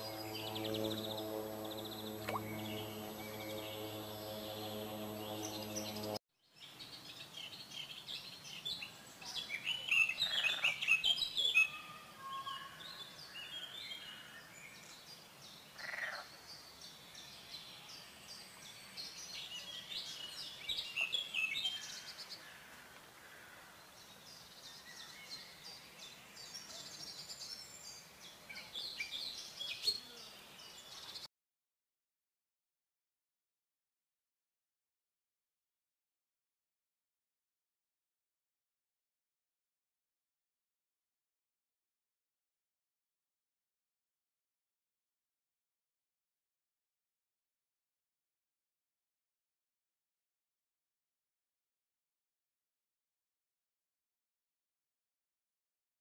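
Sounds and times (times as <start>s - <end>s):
songbirds chirping and singing: 0.0s - 22.6s.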